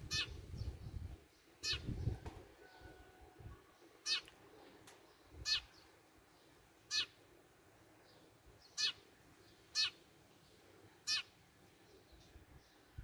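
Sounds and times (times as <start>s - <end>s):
songbird calling: 0.0s - 0.7s, 1.4s - 3.0s, 4.0s - 4.3s, 5.1s - 7.2s, 8.1s - 10.0s, 11.0s - 12.9s.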